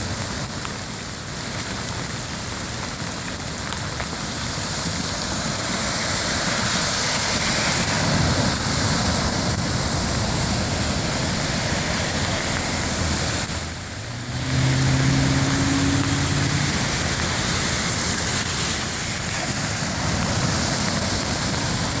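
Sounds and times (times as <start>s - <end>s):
heavy rain: 0.0s - 22.0s
rushing floodwater: 0.0s - 22.0s.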